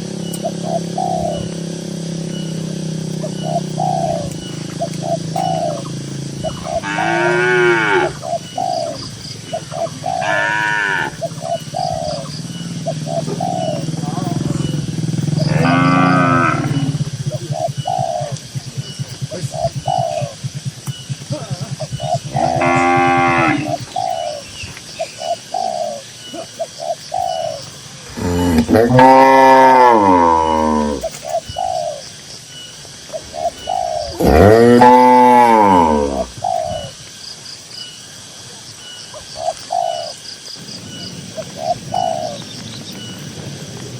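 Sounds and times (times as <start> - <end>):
doves cooing: 0.0 - 43.9
cow mooing: 6.5 - 8.2, 10.2 - 11.2, 14.0 - 17.0, 22.3 - 23.8, 28.1 - 31.0, 34.1 - 36.3.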